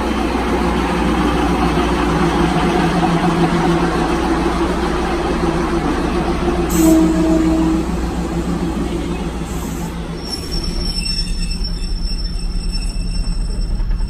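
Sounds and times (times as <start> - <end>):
train rumbling on rails: 0.0 - 14.0
high-pitched wheel squeal: 9.1 - 14.0.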